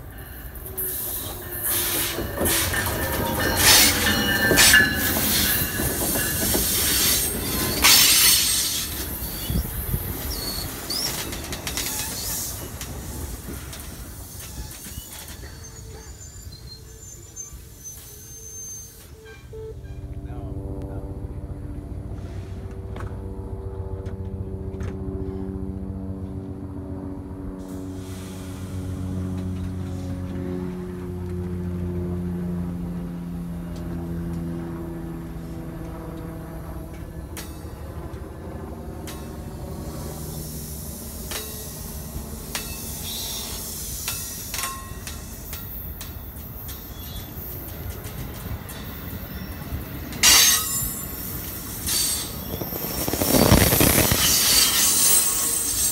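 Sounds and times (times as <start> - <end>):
wheel-on-rail hiss: 0.0 - 19.2, 27.6 - 30.0, 39.1 - 55.9
electric train hum and rumble: 0.0 - 55.9.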